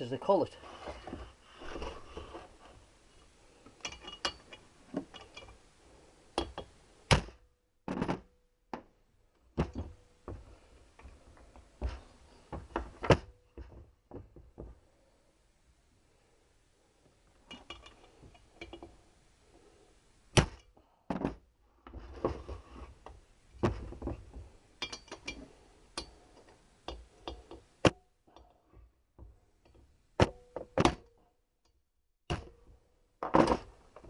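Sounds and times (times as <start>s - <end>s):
light metal rattling: 3.7s - 5.6s, 17.4s - 19.1s.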